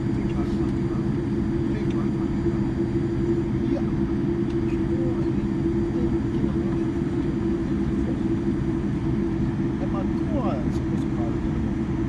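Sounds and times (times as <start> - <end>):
airliner engines droning: 0.0 - 12.0.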